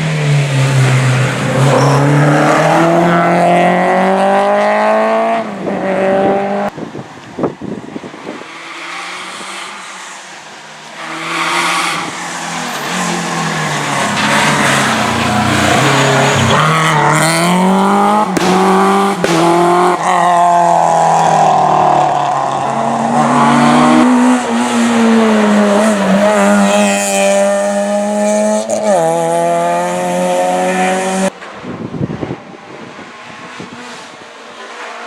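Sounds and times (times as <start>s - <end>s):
rally car engine revving: 0.0s - 6.8s, 10.8s - 31.4s
sharp cracks: 18.3s - 20.0s.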